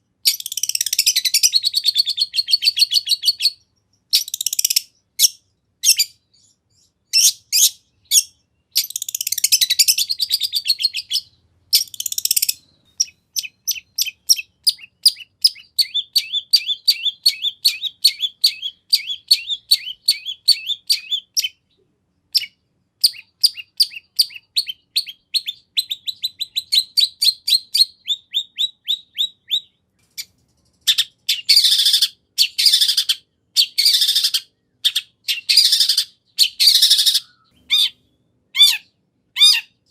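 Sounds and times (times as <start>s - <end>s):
bird chirping rapidly: 0.2s - 39.9s
harsh scratchy bird calls: 22.3s - 39.9s.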